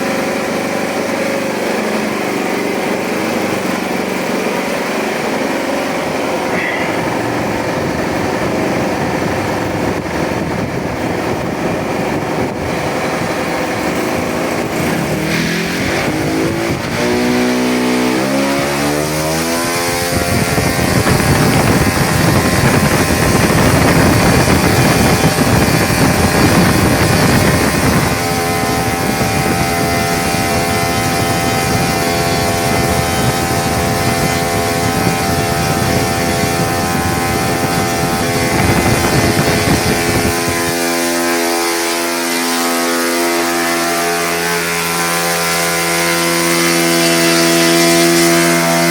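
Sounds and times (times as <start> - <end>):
model airplane engine running: 0.0 - 48.9.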